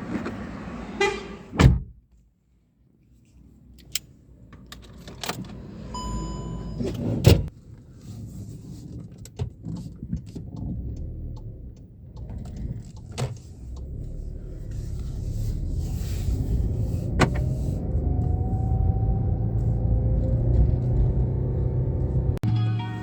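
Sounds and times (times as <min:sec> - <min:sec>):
electronic beep: 0:06.0 - 0:06.9.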